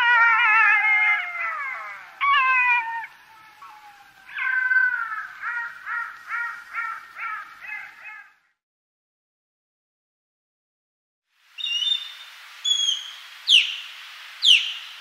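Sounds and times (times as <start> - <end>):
jackal wailing howls: 0.0 - 8.3.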